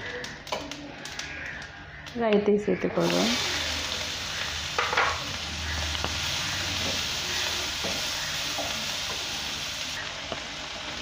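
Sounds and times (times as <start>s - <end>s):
onions sizzling in hot oil: 2.8s - 11.0s
spatula scraping and tapping pan: 6.8s - 9.2s.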